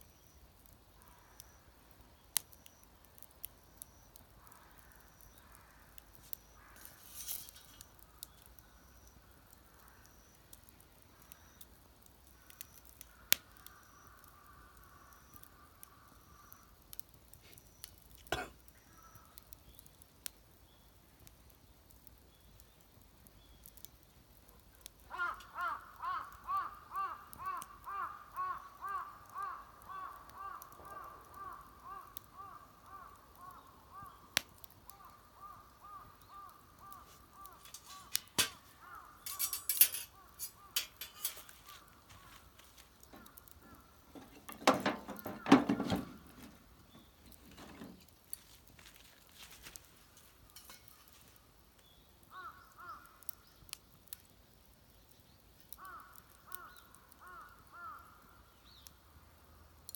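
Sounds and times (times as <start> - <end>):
clattering bursts: 44.1 - 46.6.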